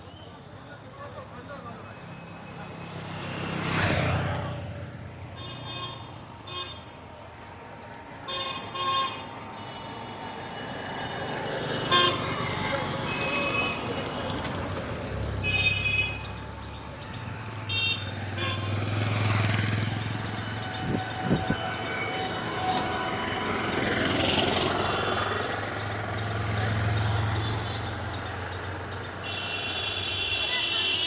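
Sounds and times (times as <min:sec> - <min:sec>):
traffic engine drone: 0:00.0 - 0:31.0
vehicle horn toots: 0:11.8 - 0:13.9, 0:17.6 - 0:19.0, 0:20.3 - 0:24.4, 0:29.2 - 0:31.0.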